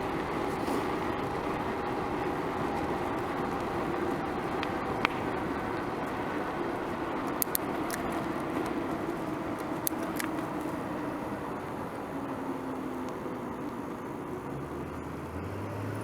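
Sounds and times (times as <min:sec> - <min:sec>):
bicycle road noise: 0:00.0 - 0:16.0
bicycle clicks and rattles: 0:03.5 - 0:11.2.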